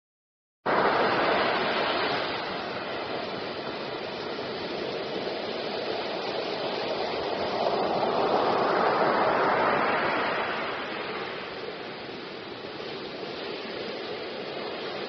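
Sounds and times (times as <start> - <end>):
rushing water: 0.7 - 15.0.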